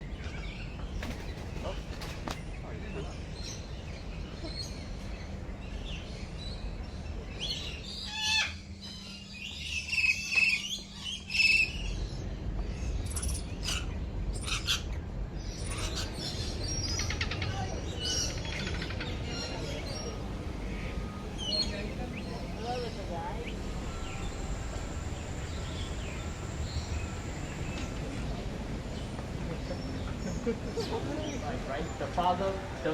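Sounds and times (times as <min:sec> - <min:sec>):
birds calling and chirping: 0:00.0 - 0:32.9
bird trilling: 0:15.6 - 0:27.8.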